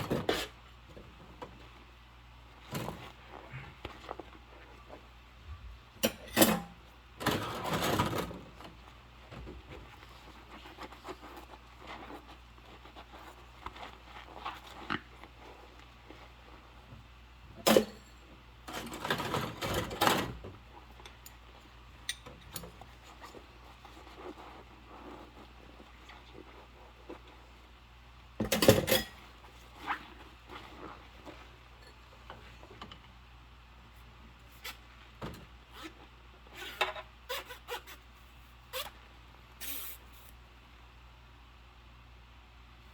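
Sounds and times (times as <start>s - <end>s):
dishes and cutlery clattering: 28.4s - 29.3s.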